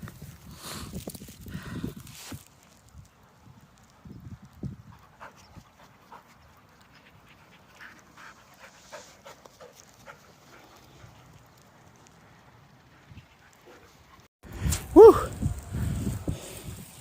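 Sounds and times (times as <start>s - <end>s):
dogs panting: 4.8s - 14.3s.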